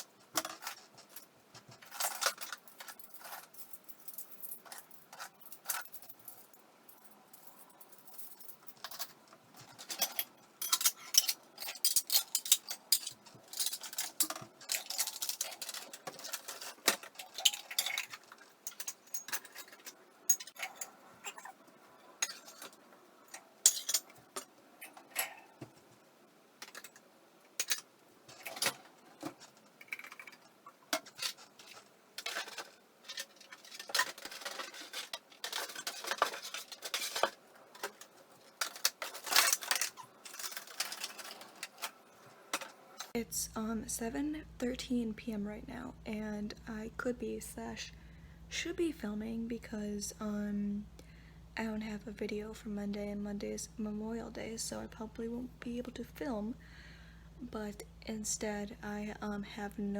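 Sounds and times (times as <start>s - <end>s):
dishes and cutlery clattering: 8.0s - 21.5s, 22.2s - 22.8s, 23.6s - 25.4s, 31.0s - 41.9s.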